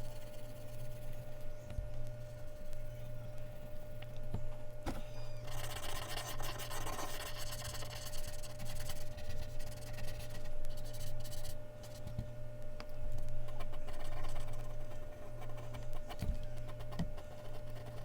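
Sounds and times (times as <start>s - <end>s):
low electrical hum: 0.0s - 18.0s
pencil scratching on paper: 5.5s - 12.1s, 13.5s - 18.0s.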